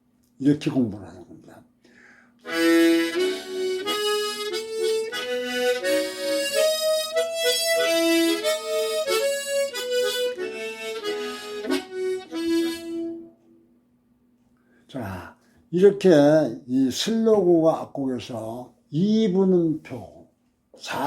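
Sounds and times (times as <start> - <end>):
solo harmonica playing scale: 2.4 - 13.6.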